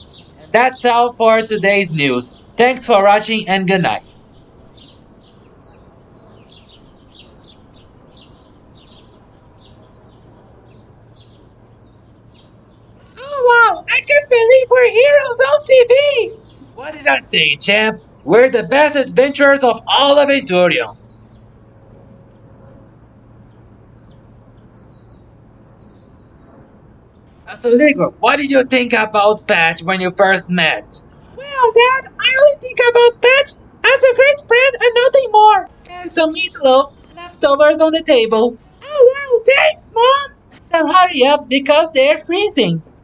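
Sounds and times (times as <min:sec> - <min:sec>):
low background hiss: 0:00.0 - 0:04.0, 0:13.1 - 0:20.9, 0:27.4 - 0:43.0
small birds chirping: 0:00.0 - 0:26.5, 0:27.1 - 0:43.0.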